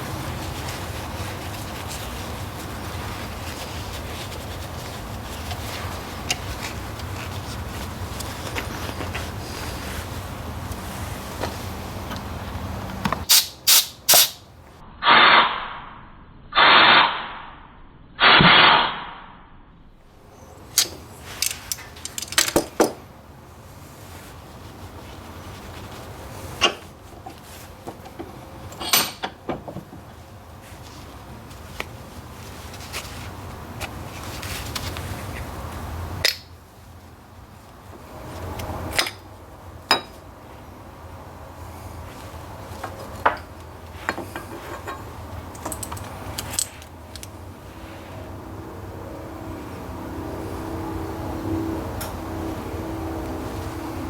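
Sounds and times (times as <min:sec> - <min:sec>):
low steady rumble: 0:00.0 - 0:13.3
short hissing sprays: 0:13.2 - 0:14.4
metal tools clinking: 0:20.7 - 0:23.0, 0:28.7 - 0:29.4, 0:44.2 - 0:47.4.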